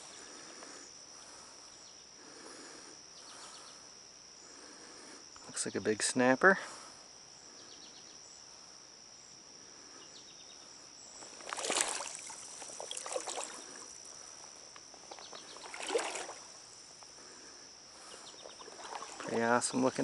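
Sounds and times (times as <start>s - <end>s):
crickets chirring: 0.0s - 20.0s
water sloshing and splashing: 11.2s - 14.1s, 14.9s - 16.6s, 18.4s - 20.0s.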